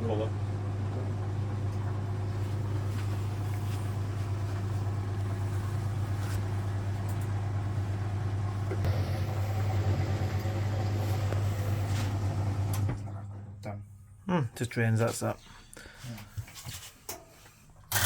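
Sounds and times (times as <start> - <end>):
washing machine drain pump humming: 0.0 - 13.8.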